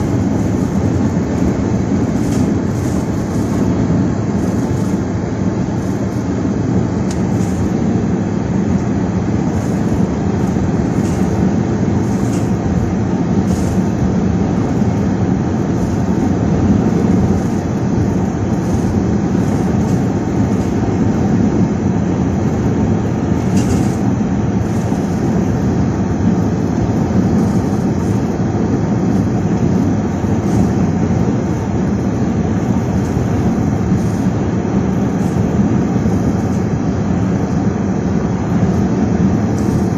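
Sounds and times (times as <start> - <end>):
strong gusting wind: 0.0 - 39.9
vehicle running noise: 0.0 - 39.9.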